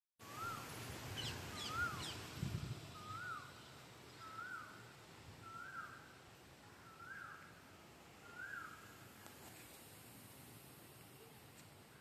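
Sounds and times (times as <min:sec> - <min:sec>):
bird whistling rising note: 0:01.2 - 0:02.2.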